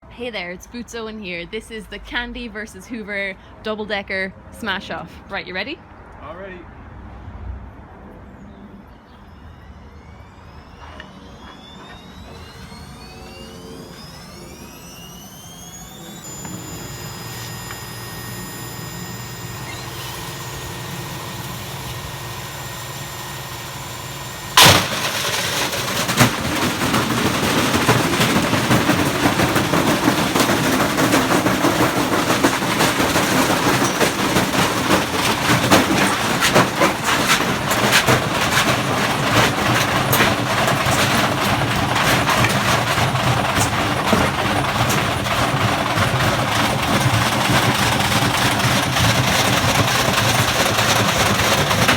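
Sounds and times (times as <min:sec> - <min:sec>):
washing machine motor hum: 0:09.5 - 0:51.9
washing machines rattling and banging: 0:16.0 - 0:51.9
loud bang: 0:24.6 - 0:29.0.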